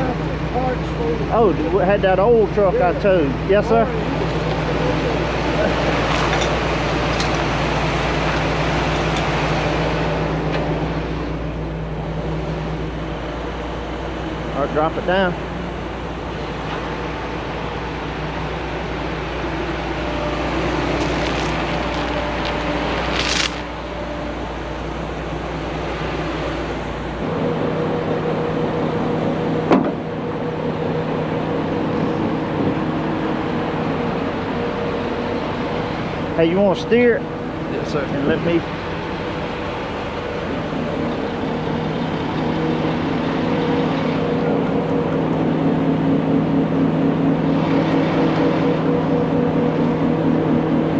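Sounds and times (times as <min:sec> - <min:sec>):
truck engine running: 0:00.0 - 0:29.6.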